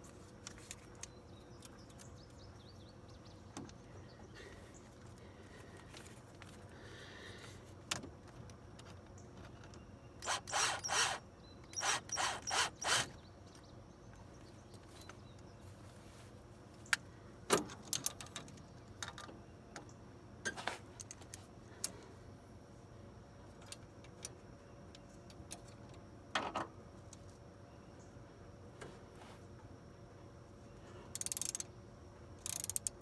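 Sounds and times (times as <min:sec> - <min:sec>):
rasping strokes on metal: 0:10.2 - 0:11.2, 0:11.8 - 0:13.1.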